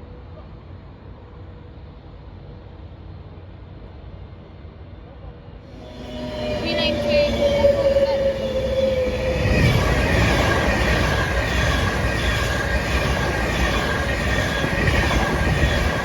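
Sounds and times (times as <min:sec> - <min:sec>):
train running along track: 0:05.7 - 0:16.0.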